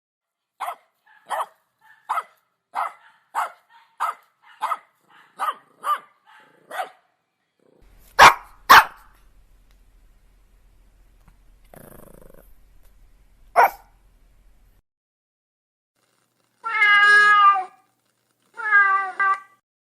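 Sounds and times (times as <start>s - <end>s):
dog barking: 0.6s - 7.2s, 8.2s - 9.2s, 13.5s - 13.9s
faint low hum: 7.6s - 14.8s.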